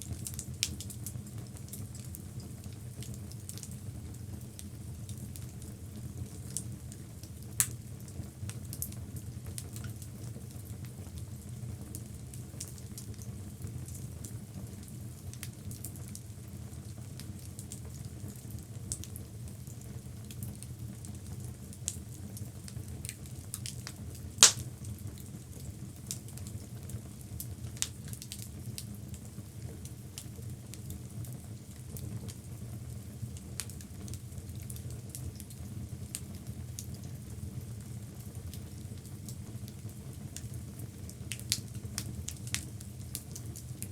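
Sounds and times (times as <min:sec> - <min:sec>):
fire crackling: 0:00.0 - 0:43.9
loud pop from fire: 0:24.4 - 0:24.7.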